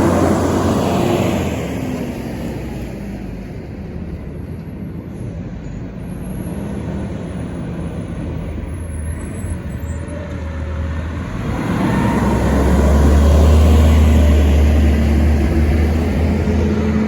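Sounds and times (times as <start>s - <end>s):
garbage truck driving past: 0.0s - 3.5s, 8.4s - 17.0s.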